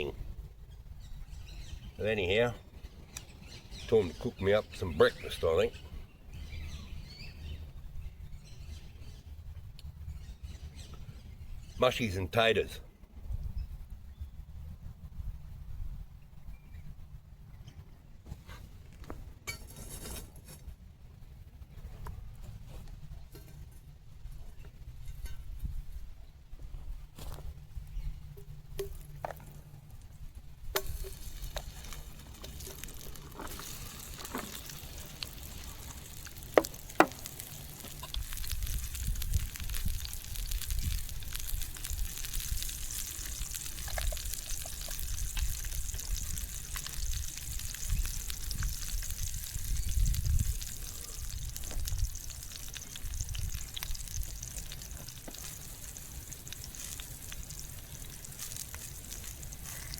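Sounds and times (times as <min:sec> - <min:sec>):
food sizzling in a pan: 0:30.9 - 0:59.9.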